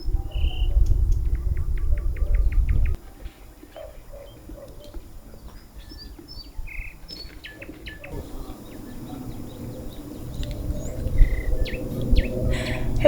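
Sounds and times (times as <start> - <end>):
songbirds chirping: 0.0 - 13.0
low background rumble: 8.2 - 13.0.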